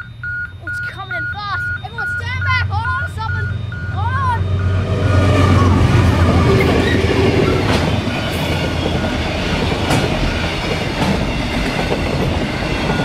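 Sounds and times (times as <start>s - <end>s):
level crossing bell ringing: 0.0s - 5.4s
locomotive deep rumble: 0.0s - 13.0s
train wheel clicks: 7.5s - 13.0s.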